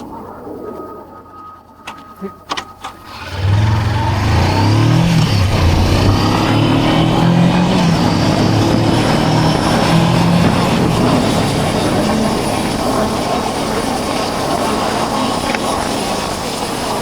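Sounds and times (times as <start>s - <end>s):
motorcycle engine running: 3.0s - 15.0s
loud wind rush: 3.1s - 17.0s.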